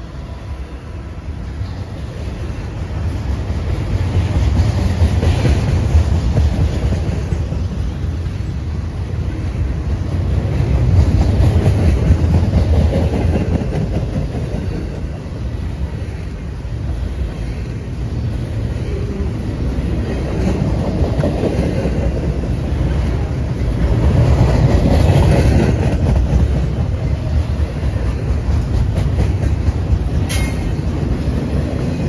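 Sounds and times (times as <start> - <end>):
train cars rumbling past: 0.0 - 32.0
wheels clacking over rail joints: 19.8 - 32.0.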